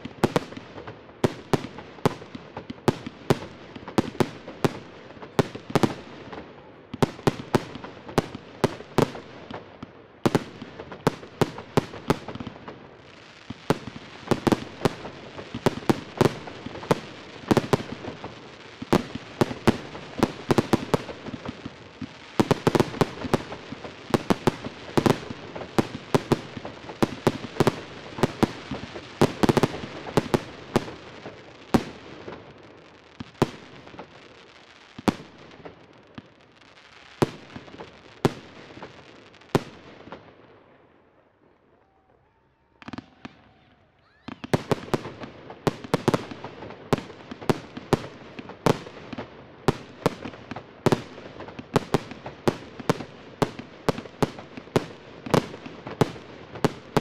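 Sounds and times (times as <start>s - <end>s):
fireworks bangs: 0.0s - 40.8s, 42.7s - 57.0s.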